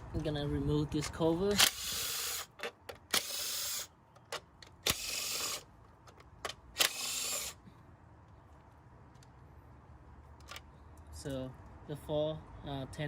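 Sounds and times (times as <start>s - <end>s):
cordless impact gun spinning bolts: 1.5s - 7.6s.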